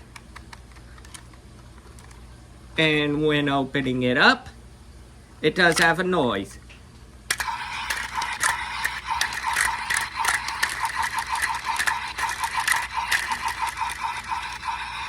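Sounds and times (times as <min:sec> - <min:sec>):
plastic toy ratchet clicking: 0:07.3 - 0:15.0.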